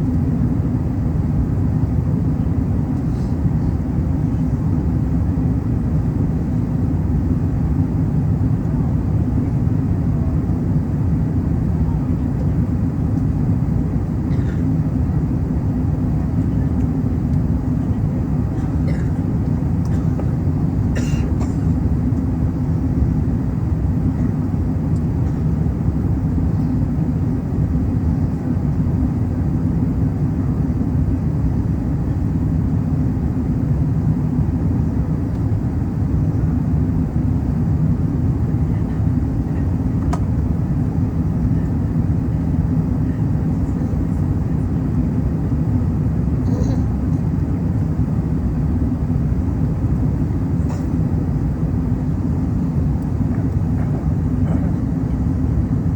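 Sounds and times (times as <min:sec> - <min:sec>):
distant aircraft engine rumble: 0:00.0 - 0:55.9.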